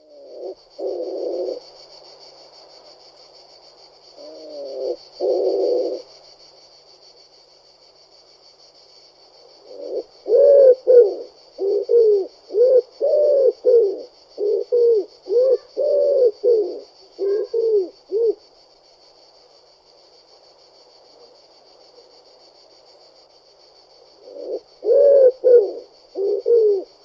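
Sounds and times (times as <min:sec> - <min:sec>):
pigeon cooing: 0:00.0 - 0:01.6, 0:04.2 - 0:06.0, 0:09.6 - 0:18.4, 0:24.2 - 0:27.0.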